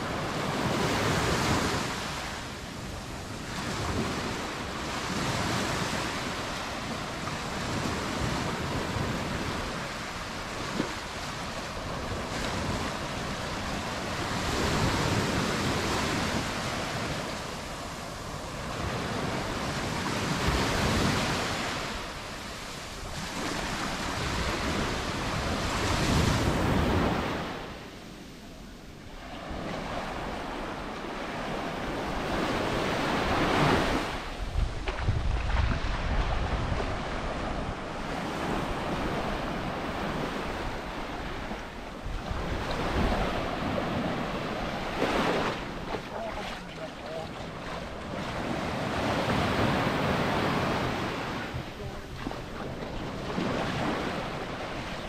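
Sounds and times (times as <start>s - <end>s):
surf breaking on beach: 29.1s - 55.0s.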